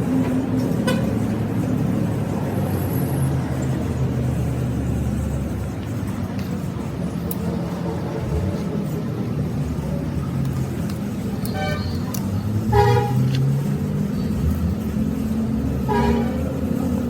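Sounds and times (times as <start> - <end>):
vehicle engine running: 0.0 - 17.0
horn honks: 0.8 - 1.2, 11.4 - 13.4, 15.8 - 16.6.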